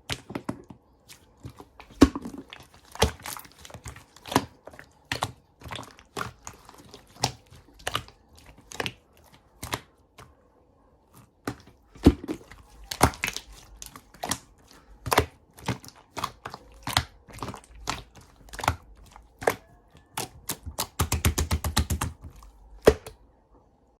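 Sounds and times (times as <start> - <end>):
slime clicking and popping: 11.4 - 23.2.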